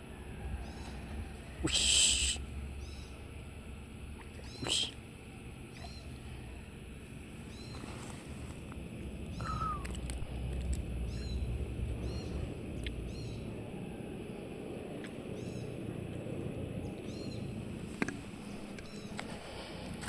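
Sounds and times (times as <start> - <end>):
steady outdoor hiss: 0.0 - 20.0
bird chirping: 0.5 - 3.4, 4.2 - 5.0, 5.6 - 6.2, 7.4 - 8.1, 9.2 - 10.1, 11.0 - 14.5, 15.2 - 15.9, 16.7 - 17.6, 18.2 - 19.3
low rumble: 8.3 - 20.0.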